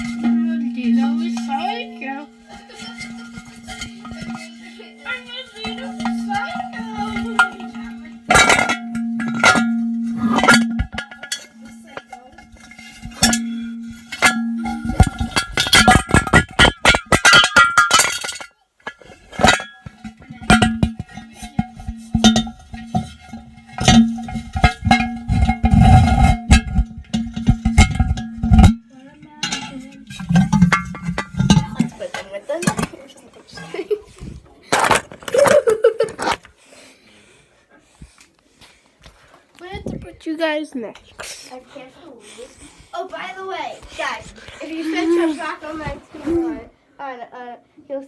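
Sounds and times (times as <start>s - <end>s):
small hard objects clattering: 0.0s - 28.8s, 29.4s - 36.5s.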